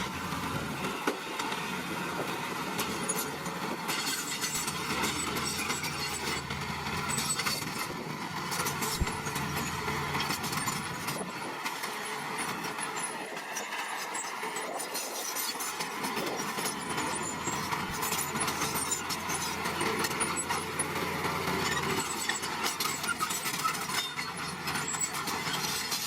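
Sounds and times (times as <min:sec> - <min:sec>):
bulldozer diesel engine: 0:00.0 - 0:26.0
tracks and blade clanking on stone: 0:02.8 - 0:26.0.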